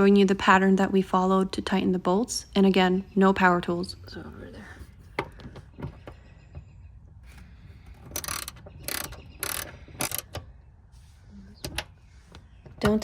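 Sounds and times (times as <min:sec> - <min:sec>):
ratchet wrench clicking: 0:08.1 - 0:10.4.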